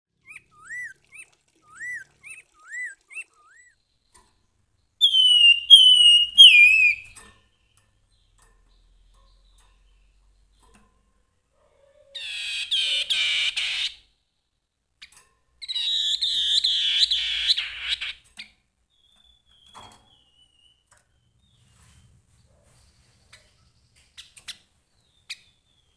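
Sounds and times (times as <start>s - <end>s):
babbler singing: 0.2s - 3.8s, 5.0s - 7.2s, 11.8s - 14.0s.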